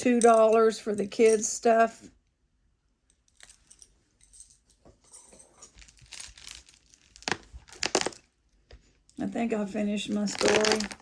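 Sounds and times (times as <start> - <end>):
jewelry clinking together: 0.0 - 1.7, 3.2 - 8.2, 9.8 - 11.0.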